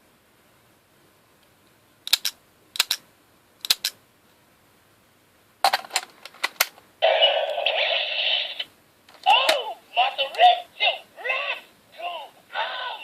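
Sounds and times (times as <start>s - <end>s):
plastic toy clicks: 2.1s - 3.0s, 3.6s - 4.0s.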